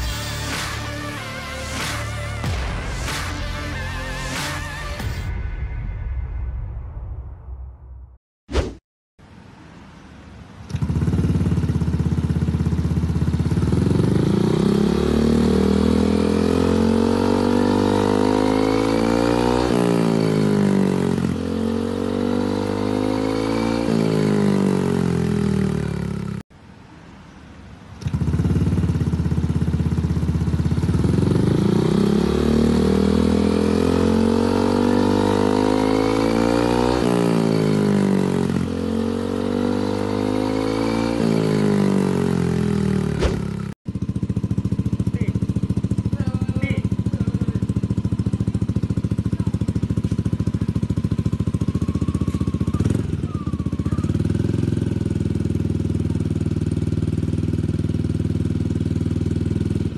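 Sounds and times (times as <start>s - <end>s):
scooter engine revving: 10.7s - 26.4s, 28.0s - 59.9s.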